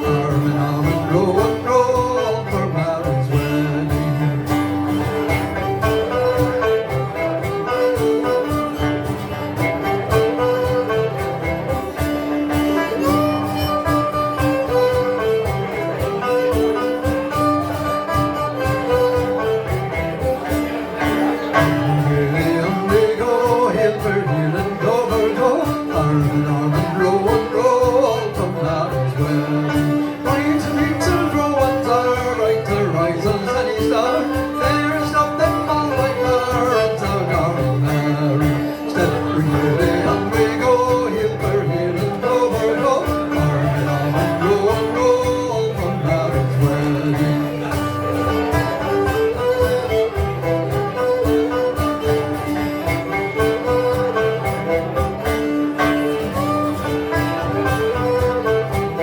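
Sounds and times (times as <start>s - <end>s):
banjo: 0.0s - 59.0s
strummed twelve-string guitar: 0.0s - 59.0s.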